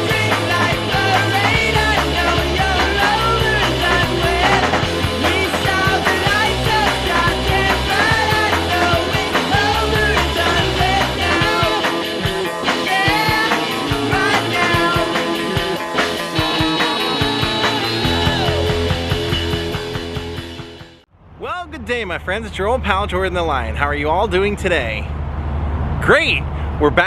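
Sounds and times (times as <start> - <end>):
steady drum beat: 0.0 - 20.7
rock intro music: 0.0 - 21.0
wavering lead melody: 0.0 - 21.0
bass: 0.0 - 27.0.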